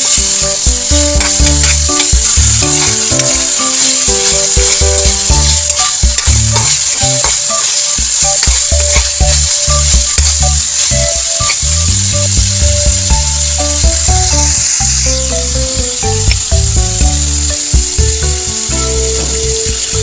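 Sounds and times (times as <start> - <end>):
spatula scraping a wok: 0.0 - 15.2
background music with bass: 0.0 - 20.0
meat sizzling in hot oil: 0.0 - 20.0.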